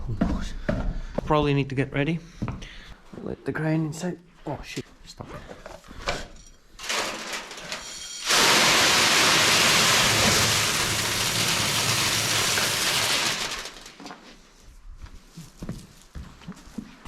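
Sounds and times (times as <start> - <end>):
short rattle: 6.3 - 14.2
grain pouring from silo: 6.8 - 14.4.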